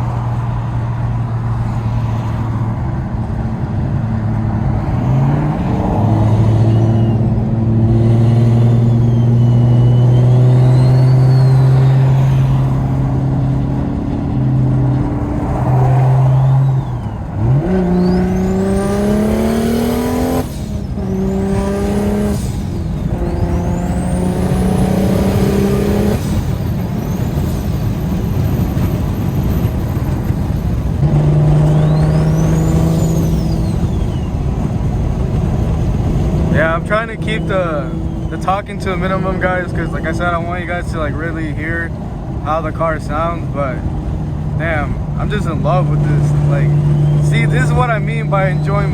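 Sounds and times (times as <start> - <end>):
engine drone while cruising: 0.0 - 48.9
car engine revving hard: 3.8 - 27.8, 30.9 - 48.9
turbo whistle: 6.5 - 7.4, 8.2 - 12.6, 31.5 - 34.4, 46.2 - 48.9.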